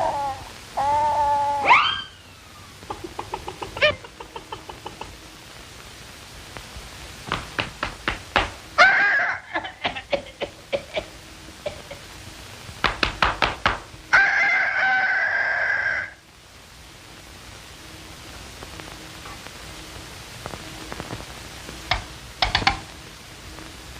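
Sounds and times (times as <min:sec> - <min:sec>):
rooster-like bird call: 0:00.0 - 0:02.6, 0:08.8 - 0:09.5, 0:14.1 - 0:16.3
steady hiss: 0:00.0 - 0:23.9
sharp rapid knocks: 0:07.3 - 0:08.6, 0:12.8 - 0:13.9.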